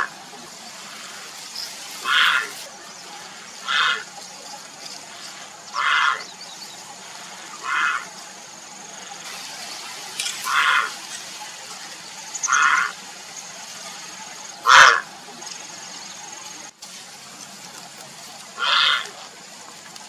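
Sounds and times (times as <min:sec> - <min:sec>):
heron calling: 0:02.0 - 0:04.2, 0:05.1 - 0:08.2, 0:10.4 - 0:11.0, 0:12.4 - 0:13.0, 0:14.6 - 0:15.1, 0:18.6 - 0:19.2.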